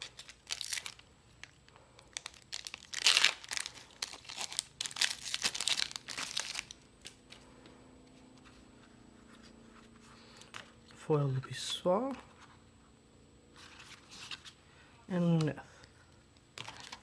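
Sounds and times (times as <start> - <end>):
wrapper tearing and crinkling: 0.0 - 7.2, 16.6 - 17.0.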